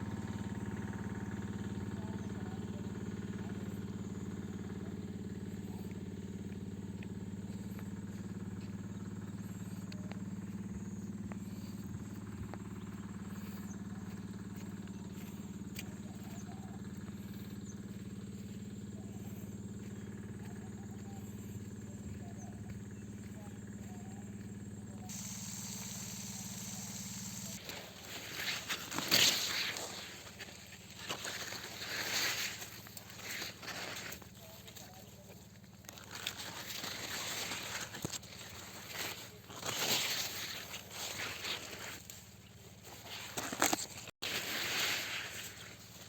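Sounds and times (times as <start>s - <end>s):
stationary engine running: 0.0s - 31.8s.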